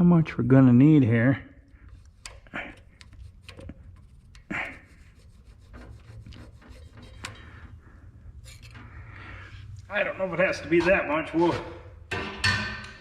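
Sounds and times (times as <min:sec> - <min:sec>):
metal plate scraping: 0:03.3 - 0:12.9.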